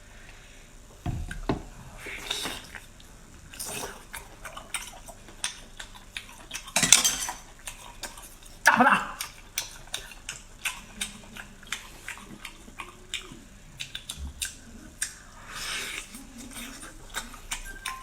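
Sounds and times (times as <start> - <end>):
wet chewing and mouth clicks: 2.2 - 6.8, 7.4 - 18.0.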